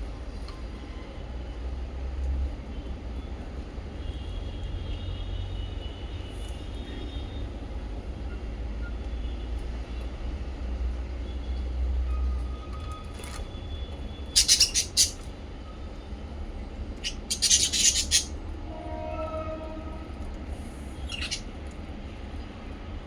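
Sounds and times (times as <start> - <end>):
faint high bird chirps: 14.2 - 15.3, 17.0 - 18.3, 21.0 - 21.5.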